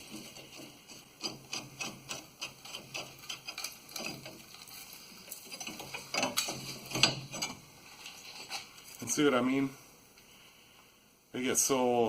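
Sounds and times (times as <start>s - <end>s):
clicks and scraping of hand work: 0.0s - 9.0s.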